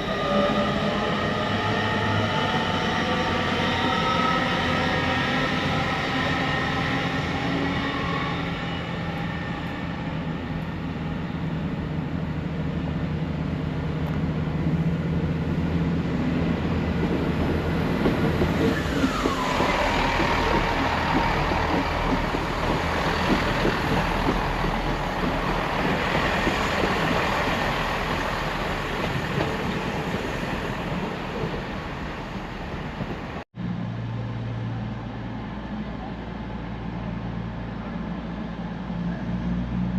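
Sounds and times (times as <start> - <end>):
train engine drone: 0.0 - 39.9
train wheels rushing past: 15.5 - 33.4.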